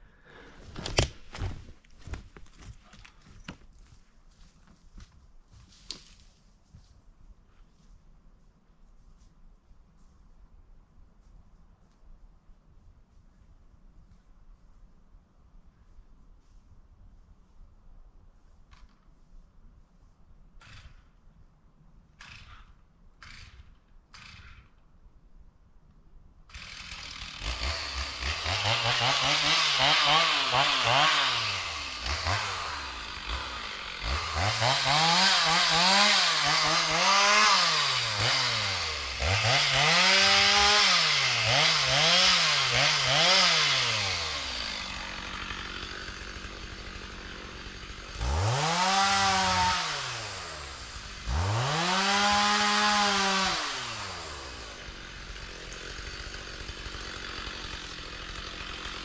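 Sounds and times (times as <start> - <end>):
chainsaw revving and idling: 22.2 - 24.7, 26.5 - 59.0.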